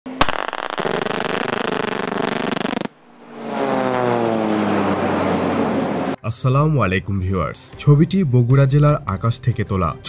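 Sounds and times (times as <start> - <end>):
propeller aircraft engine buzz: 0.1 - 6.2
aircraft passing by: 0.8 - 7.3.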